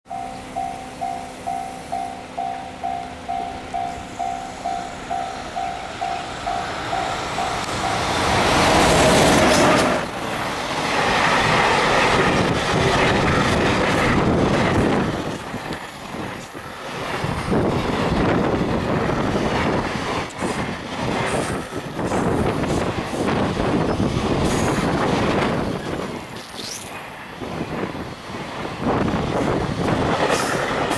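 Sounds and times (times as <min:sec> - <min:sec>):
electric locomotive passing: 0:00.1 - 0:30.9
wheels clattering on rails: 0:06.5 - 0:30.9
thin high squeal: 0:25.5 - 0:28.1.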